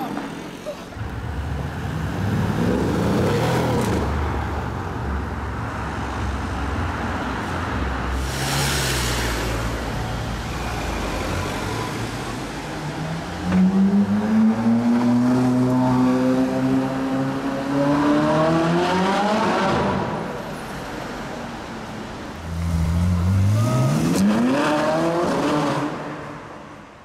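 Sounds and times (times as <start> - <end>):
car engines rumbling in traffic: 0.0 - 27.0
car passing by: 8.0 - 12.0.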